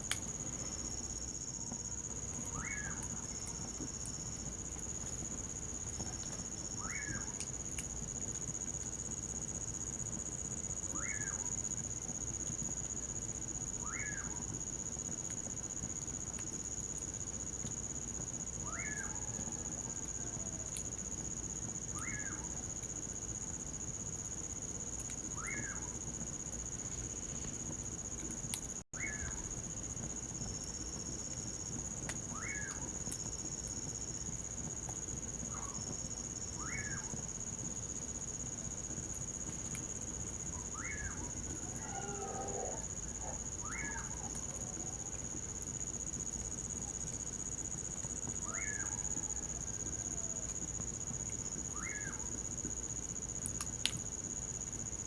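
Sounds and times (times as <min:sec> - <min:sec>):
crickets trilling: 0:00.0 - 0:55.0
bird whistled call: 0:29.0 - 0:29.4, 0:40.7 - 0:41.3, 0:43.6 - 0:44.1, 0:51.7 - 0:52.2.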